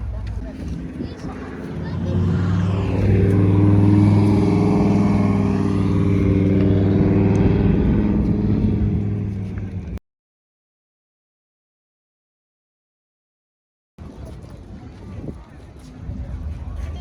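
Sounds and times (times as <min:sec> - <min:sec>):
car engine running: 0:00.0 - 0:10.0.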